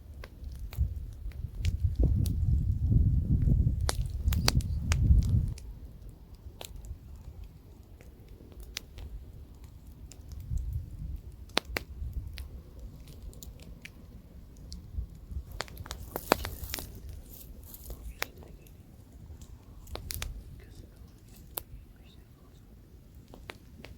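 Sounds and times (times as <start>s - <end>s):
campfire crackling and popping: 0.0s - 23.9s
low wind rumble: 0.0s - 23.9s.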